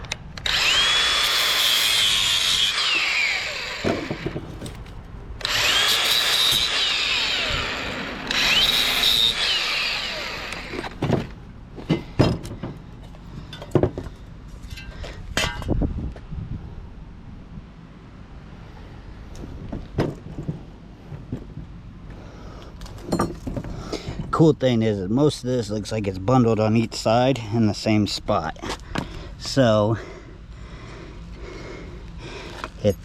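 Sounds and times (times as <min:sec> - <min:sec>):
power saw cutting metal: 0:00.4 - 0:11.2.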